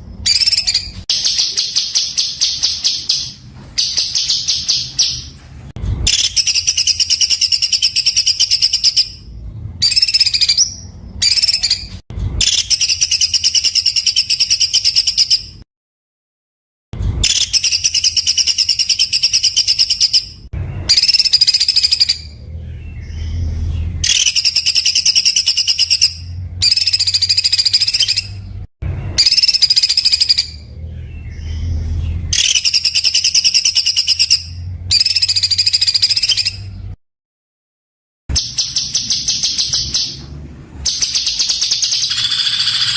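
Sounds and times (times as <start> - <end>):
songbird rattling rapid notes: 40.9 - 42.9.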